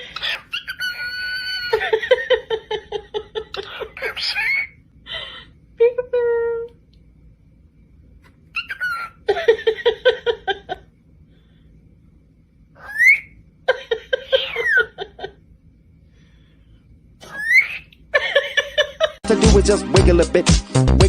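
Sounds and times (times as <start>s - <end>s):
parrot chattering calls: 0.0s - 1.9s, 3.5s - 4.8s, 8.5s - 9.3s, 12.8s - 13.4s, 14.2s - 15.0s, 17.2s - 18.0s
parrot whistling: 0.1s - 1.8s, 3.6s - 4.8s, 8.6s - 9.2s, 12.8s - 13.4s, 14.3s - 14.9s, 17.2s - 18.0s.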